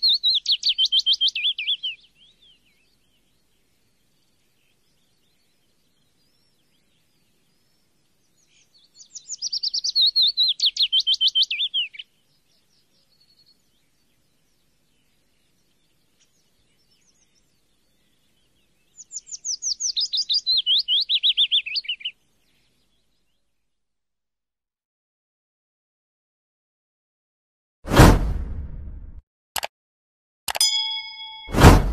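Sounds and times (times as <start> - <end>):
songbird trilling: 0.0 - 3.4, 5.2 - 22.6
faint bird chirps: 0.0 - 24.0.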